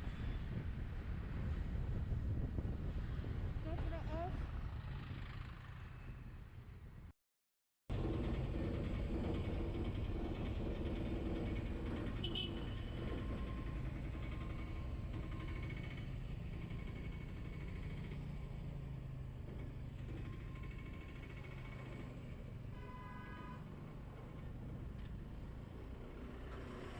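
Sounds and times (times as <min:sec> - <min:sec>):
wind and road rumble: 0:00.0 - 0:07.1, 0:07.9 - 0:22.8, 0:23.6 - 0:26.9
vehicle engine hum: 0:07.9 - 0:26.9.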